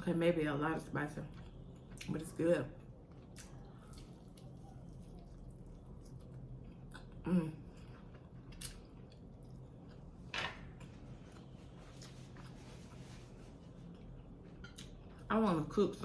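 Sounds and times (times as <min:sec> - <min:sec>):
person chewing: 0:02.8 - 0:10.2, 0:11.2 - 0:13.1.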